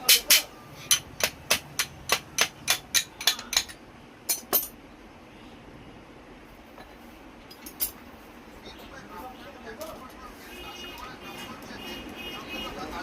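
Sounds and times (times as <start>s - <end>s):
hammer tapping metal: 0.0s - 4.8s.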